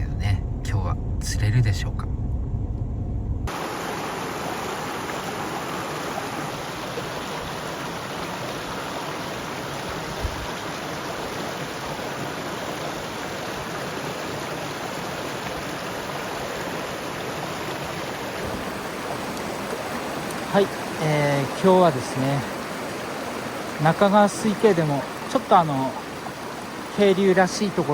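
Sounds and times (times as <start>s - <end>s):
low thump: 0.0s - 3.5s
mountain stream rushing: 3.5s - 27.9s.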